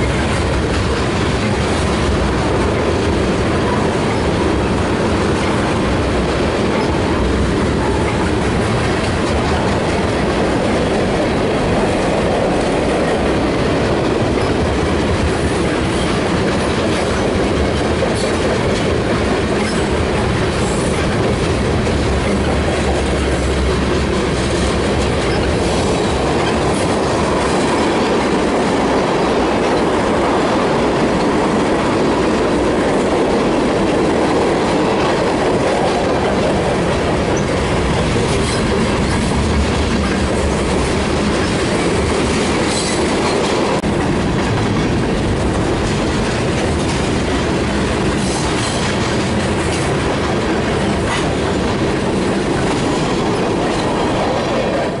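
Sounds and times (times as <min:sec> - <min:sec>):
steel wheels on rails: 0:00.0 - 0:55.0.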